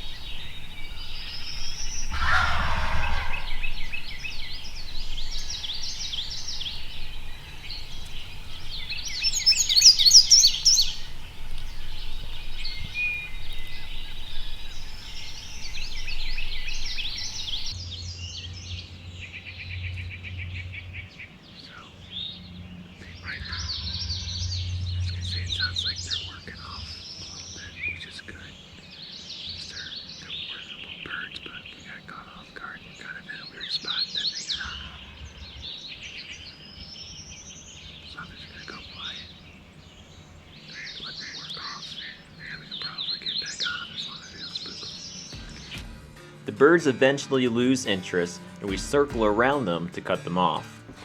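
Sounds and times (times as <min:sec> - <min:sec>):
turkey gobble: 0:00.0 - 0:17.7
low rumble: 0:00.0 - 0:28.5
songbird chorus: 0:00.0 - 0:51.0.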